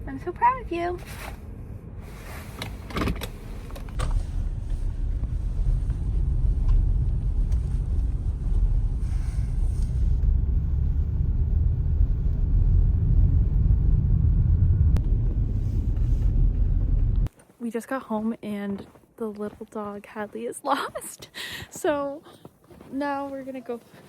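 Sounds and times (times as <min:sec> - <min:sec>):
car road and engine rumble: 0:00.0 - 0:17.4.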